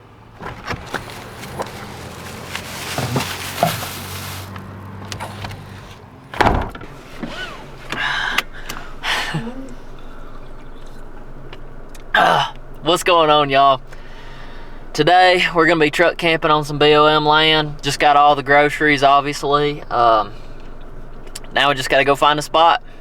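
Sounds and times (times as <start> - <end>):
clicks and rustling: 0.2 - 9.0
door slamming shut: 5.0 - 8.8.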